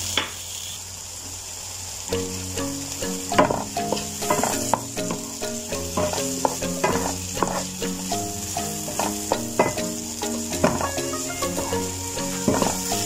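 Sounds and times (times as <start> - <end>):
vegetables sizzling in oil: 0.0 - 13.0
spatula scraping a pan: 3.5 - 5.3, 5.9 - 7.8, 8.8 - 9.8, 10.6 - 13.0.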